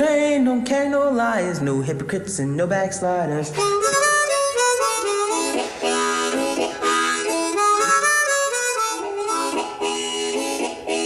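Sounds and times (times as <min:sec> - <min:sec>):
harmonica playing chords and notes: 0:03.5 - 0:11.0.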